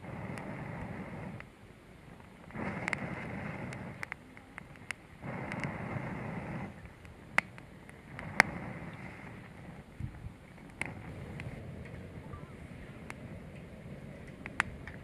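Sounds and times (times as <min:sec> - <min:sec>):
gusts of rough noise: 0:00.0 - 0:15.0
sharp clicks or cracks: 0:13.1 - 0:15.0.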